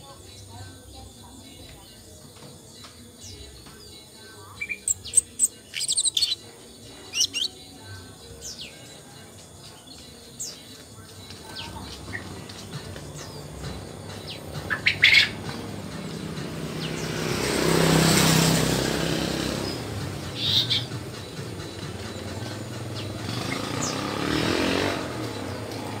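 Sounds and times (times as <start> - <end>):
bird high chirps: 4.6 - 7.8.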